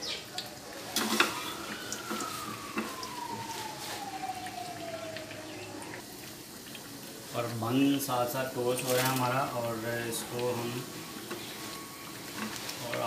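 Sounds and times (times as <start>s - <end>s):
patties deep-frying in oil: 0.0s - 13.0s
high tone falling in pitch: 0.9s - 6.0s.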